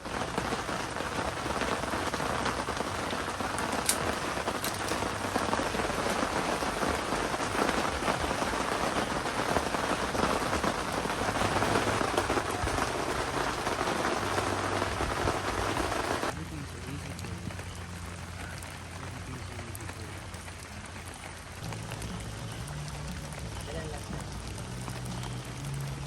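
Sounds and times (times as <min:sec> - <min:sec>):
heavy rain falling: 0:00.0 - 0:26.0
sharp drip clicks: 0:03.6 - 0:05.2.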